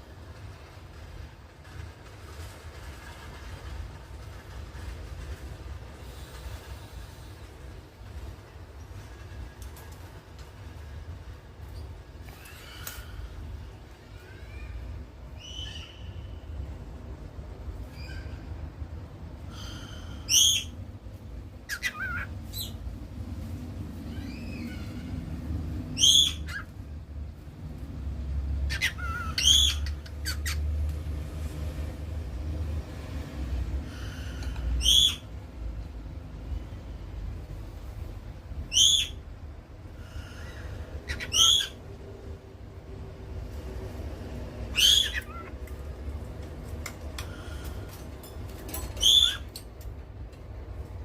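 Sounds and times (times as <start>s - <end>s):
cockatiel sharp calls: 21.7s - 22.8s, 28.7s - 30.6s, 40.2s - 41.8s, 44.7s - 45.6s.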